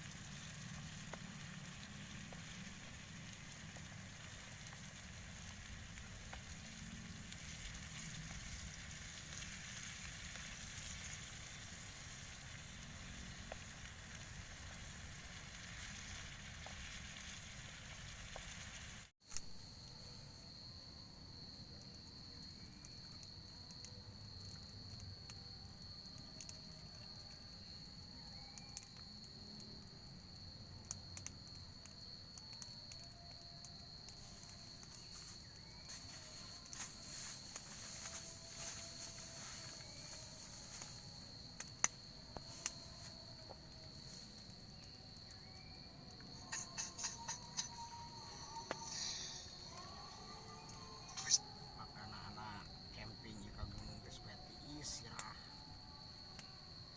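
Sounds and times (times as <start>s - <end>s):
steady hiss: 0.0s - 20.6s, 33.9s - 55.6s
insect high-pitched drone: 0.0s - 56.9s.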